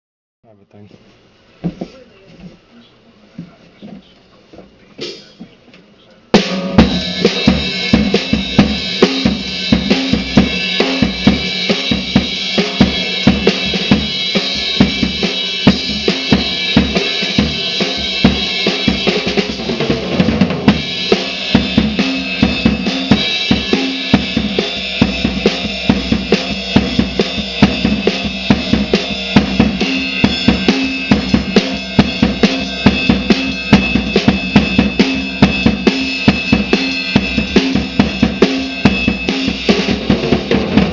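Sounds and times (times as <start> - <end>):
drum kit groove: 1.2 - 40.9.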